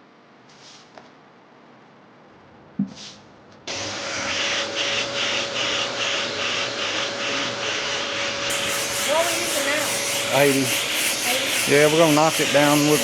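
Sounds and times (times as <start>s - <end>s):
powered sander running: 8.5s - 13.0s
sanding strokes swishing: 8.5s - 13.0s.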